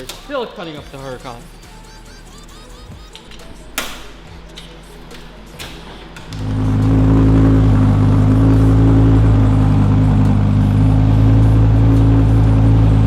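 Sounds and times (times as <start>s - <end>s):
sports car engine idling: 1.4s - 13.0s.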